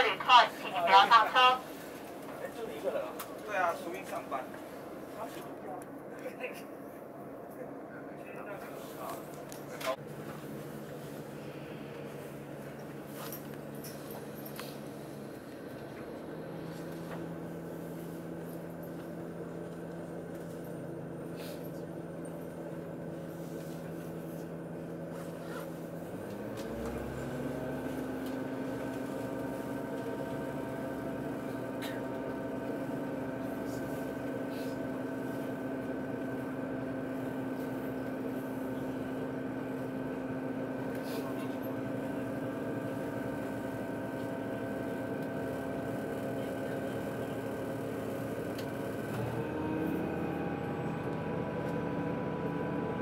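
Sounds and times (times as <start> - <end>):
train machinery hum: 0.0 - 53.0.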